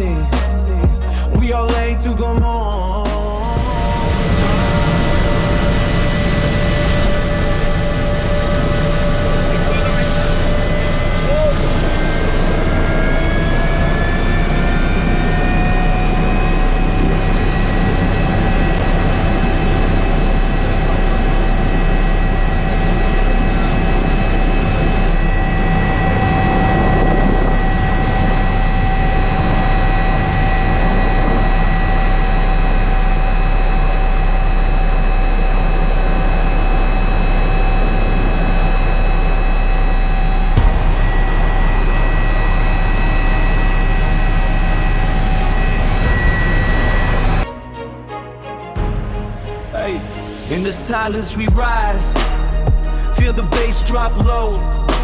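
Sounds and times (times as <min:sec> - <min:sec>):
helicopter engine and rotor: 0:04.0 - 0:47.4.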